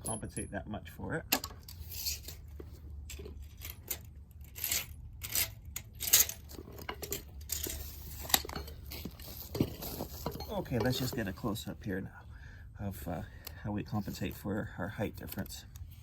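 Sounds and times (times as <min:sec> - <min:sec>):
hand tools clicking and clinking: 0:03.1 - 0:11.3.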